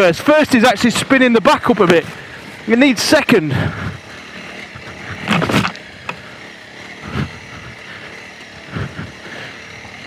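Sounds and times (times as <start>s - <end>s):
motorcycle engine pulling uphill: 0.0s - 10.0s.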